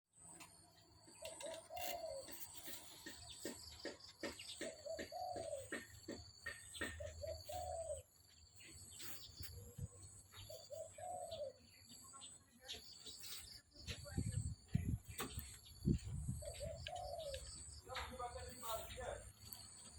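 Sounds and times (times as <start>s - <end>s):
pigeons cooing: 1.2s - 11.9s, 16.0s - 17.7s.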